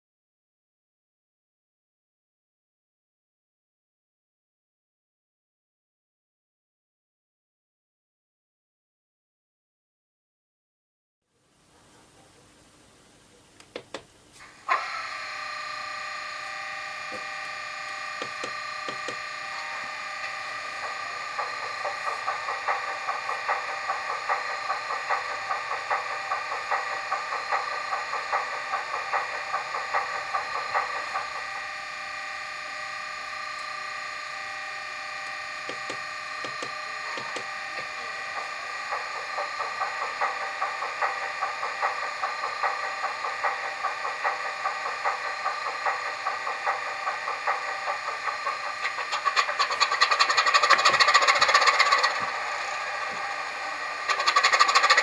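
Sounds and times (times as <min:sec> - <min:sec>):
model locomotive engine sound: 0:14.4 - 0:55.0
rhythmic beat: 0:20.5 - 0:31.6.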